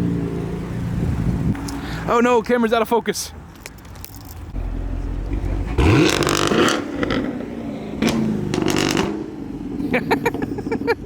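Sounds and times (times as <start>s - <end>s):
car engine revving: 4.5s - 10.8s.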